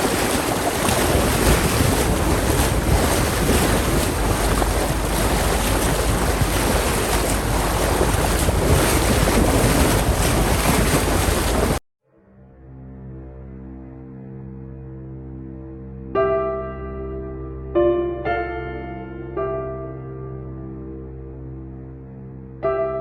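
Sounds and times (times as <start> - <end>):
sea water rushing: 0.0 - 11.8
wind buffeting microphone: 0.0 - 11.8
soft music: 12.1 - 23.0.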